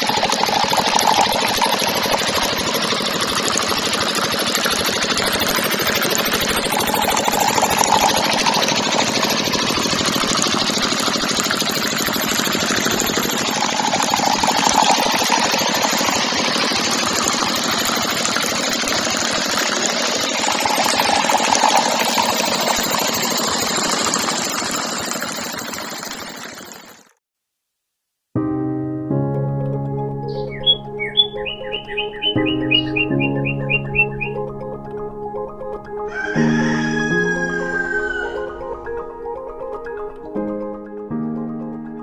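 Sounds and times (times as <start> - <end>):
small engine chattering: 0.0 - 27.1.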